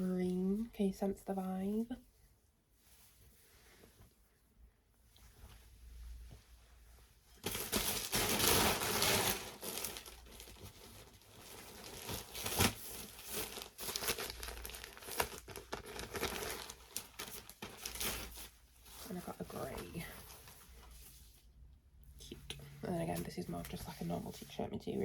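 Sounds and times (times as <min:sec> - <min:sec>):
plastic packaging crinkling: 0:07.4 - 0:20.2.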